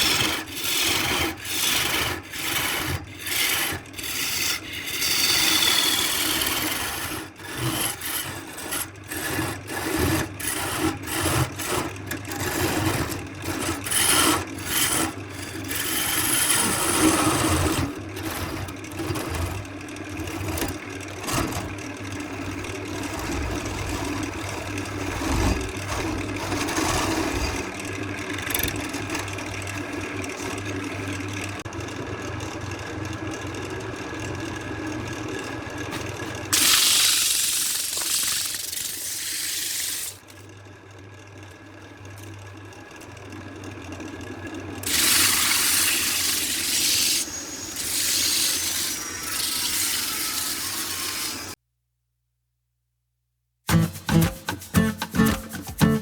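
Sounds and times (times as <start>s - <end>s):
wood being rasped by hand: 0.0s - 18.4s, 44.9s - 51.6s, 53.7s - 56.0s.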